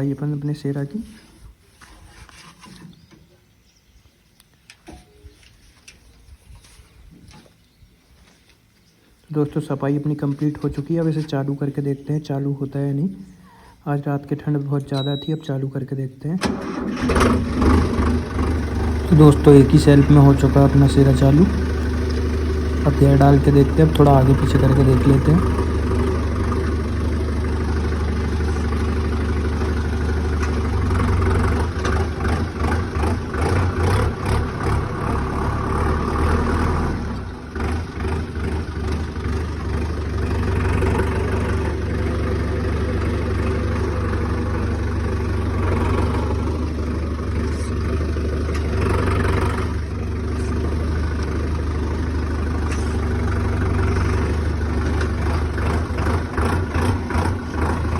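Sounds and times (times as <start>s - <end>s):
tractor diesel engine running: 14.4s - 15.6s, 16.4s - 57.9s.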